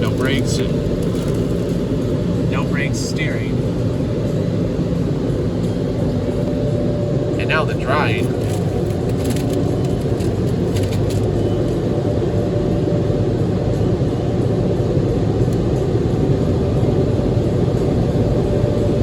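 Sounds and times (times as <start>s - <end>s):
car wash dryer blowers: 0.0s - 19.0s.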